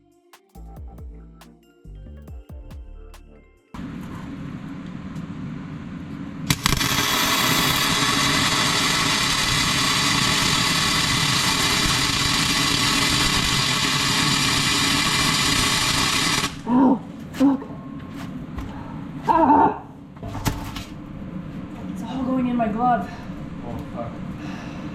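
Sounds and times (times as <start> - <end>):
arc welding crackling hiss: 6.5 - 16.7.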